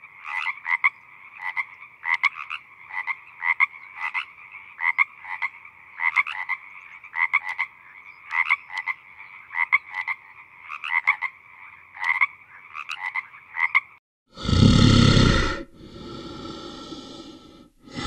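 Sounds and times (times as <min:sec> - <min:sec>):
frogs croaking in chorus: 0:00.0 - 0:14.0
loud breathy sound: 0:14.3 - 0:18.0.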